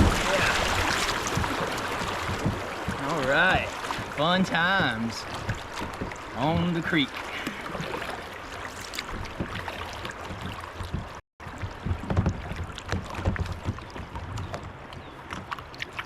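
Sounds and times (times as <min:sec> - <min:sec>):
paddle strokes splashing in water: 0:00.0 - 0:16.0.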